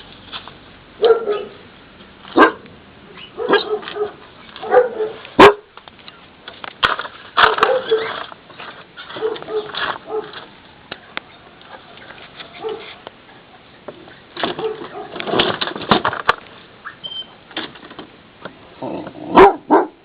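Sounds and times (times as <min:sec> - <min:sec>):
dog barking: 0:01.0 - 0:01.6, 0:02.4 - 0:02.6, 0:03.4 - 0:05.7, 0:07.5 - 0:08.1, 0:09.2 - 0:10.4, 0:12.6 - 0:13.0, 0:14.6 - 0:15.2, 0:19.3 - 0:20.0.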